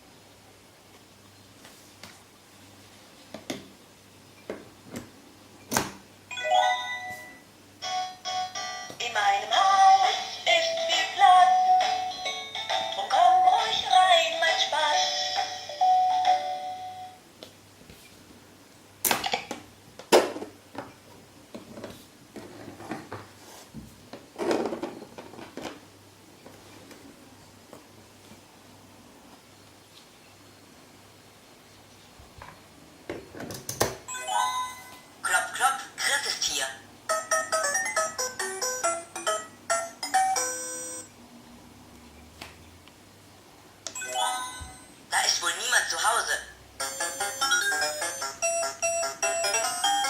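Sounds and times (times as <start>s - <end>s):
electronic toy chime tones: 6.3s - 9.0s, 15.0s - 17.2s, 34.1s - 35.1s, 37.1s - 41.1s, 44.0s - 45.0s, 46.8s - 50.0s.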